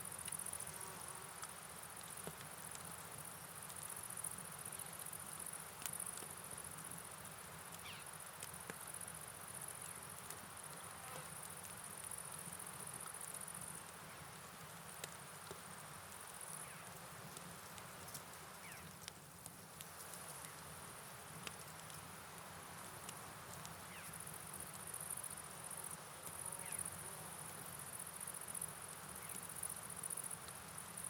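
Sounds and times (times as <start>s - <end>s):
rain hiss: 0.0s - 31.0s
light ticks: 1.4s - 3.0s, 16.8s - 20.7s, 21.4s - 22.0s, 23.0s - 23.8s
crickets chirping: 23.8s - 31.0s.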